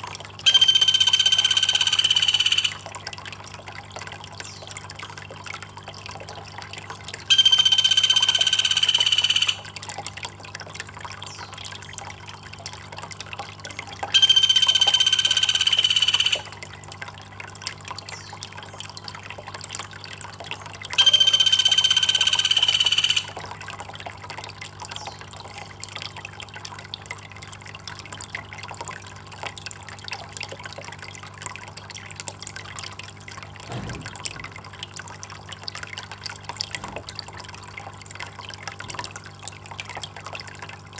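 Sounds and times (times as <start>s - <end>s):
water trickling: 0.0s - 40.9s
loud buzzing call: 0.4s - 2.8s, 7.3s - 9.7s, 14.2s - 16.6s, 21.0s - 23.4s.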